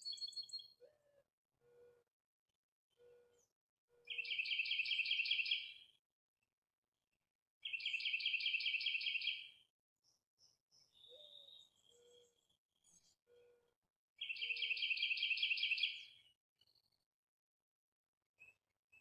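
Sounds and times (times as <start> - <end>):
songbird trilling: 4.1 - 5.7, 7.6 - 9.4.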